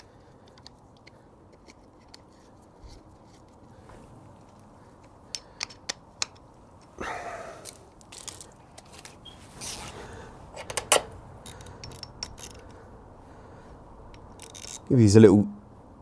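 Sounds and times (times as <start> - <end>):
metallic clicks of tools and bolts: 5.0 - 6.9, 10.6 - 12.8, 14.0 - 14.9
scraping rustle: 7.7 - 10.3.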